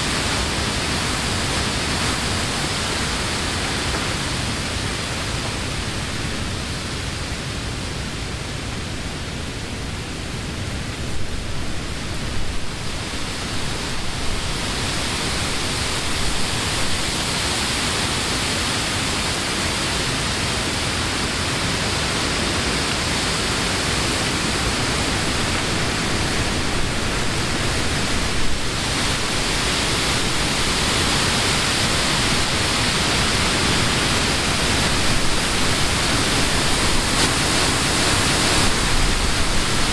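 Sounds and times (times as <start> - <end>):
wind through tree leaves: 0.0 - 39.9
wind buffeting microphone: 9.6 - 39.9.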